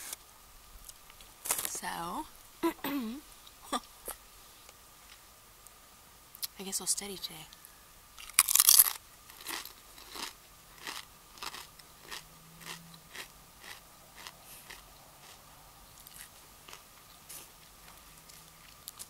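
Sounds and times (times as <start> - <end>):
chewing crunchy chips: 8.2 - 19.0.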